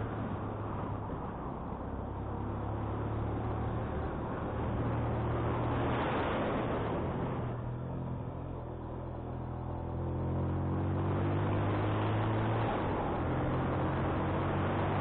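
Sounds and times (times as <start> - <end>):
wind rushing over microphone: 0.0 - 7.8.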